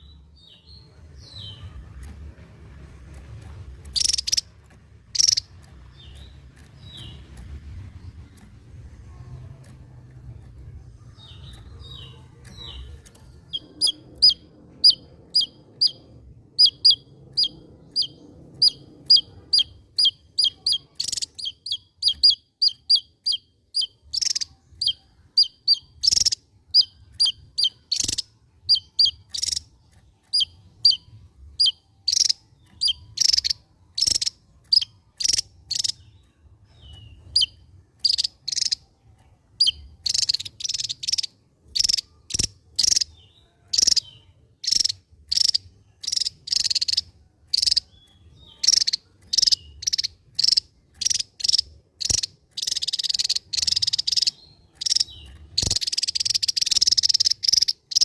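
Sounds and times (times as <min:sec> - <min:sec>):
bird singing sharp high notes: 0:03.8 - 0:04.5, 0:05.1 - 0:07.3.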